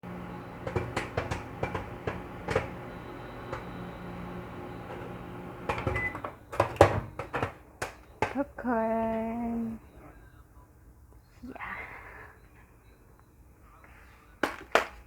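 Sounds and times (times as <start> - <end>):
microwave oven humming: 0.0 - 10.6
popcorn kernels popping: 0.1 - 3.9.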